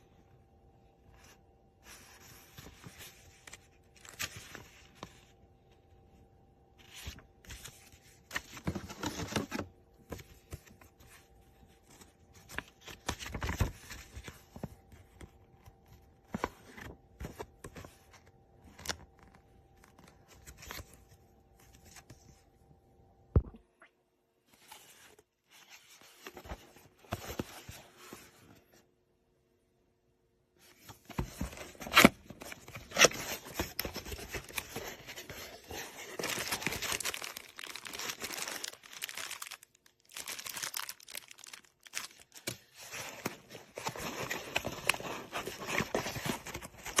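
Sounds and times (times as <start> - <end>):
faint steady hum: 0.0 - 47.0
handling rustling and scraping: 24.5 - 28.9, 30.6 - 47.0.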